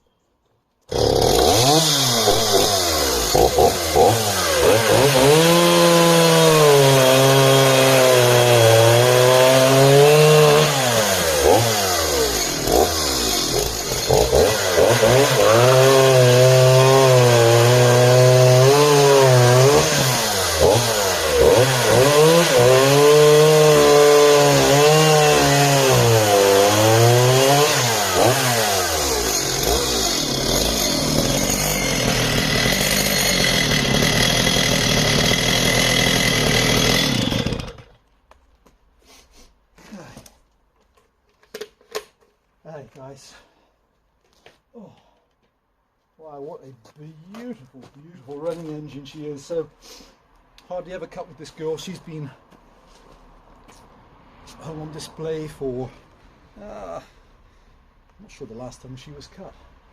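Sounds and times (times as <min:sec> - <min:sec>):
chainsaw cutting wood: 0:00.9 - 0:38.1.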